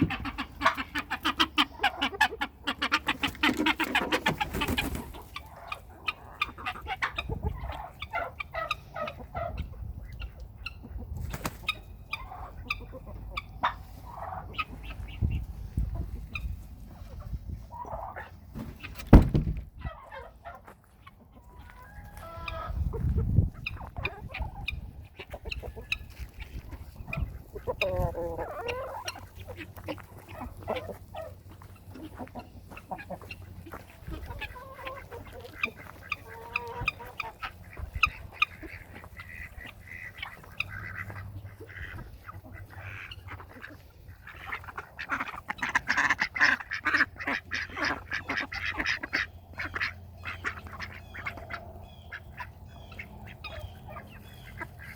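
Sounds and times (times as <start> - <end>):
chickens clucking: 0.0 - 54.9
fowl calls: 0.0 - 54.9
sharp knock: 19.1 - 19.6.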